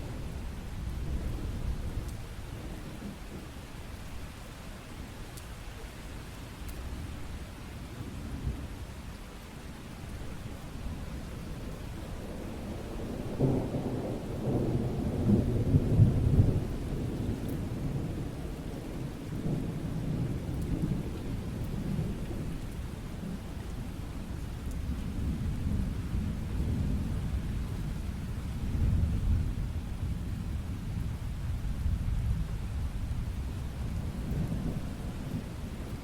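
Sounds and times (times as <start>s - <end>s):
steady rain: 0.0s - 36.0s
rolling thunder rumbling: 12.2s - 22.5s, 28.6s - 36.0s.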